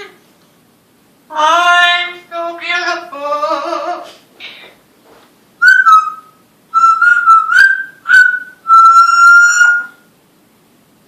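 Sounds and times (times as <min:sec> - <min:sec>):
parrot whistling a tune: 0:05.6 - 0:10.1.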